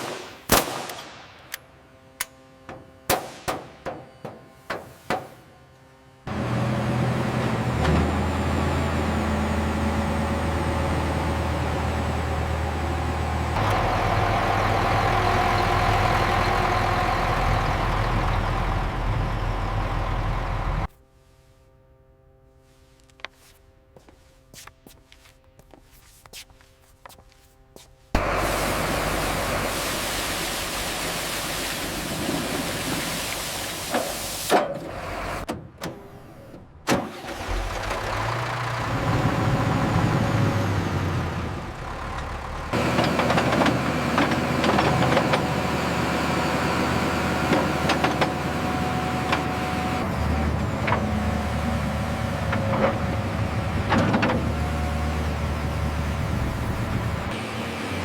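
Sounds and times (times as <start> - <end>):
bulldozer diesel engine running: 6.3 - 20.9, 28.2 - 35.5, 36.1 - 58.0.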